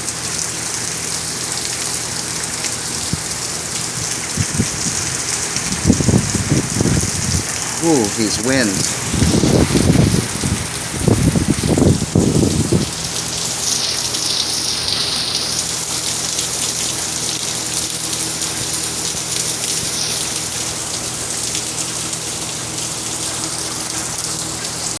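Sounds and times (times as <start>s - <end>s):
heavy rain hissing: 1.3s - 25.0s
wind buffeting microphone: 4.0s - 7.7s, 8.8s - 13.0s.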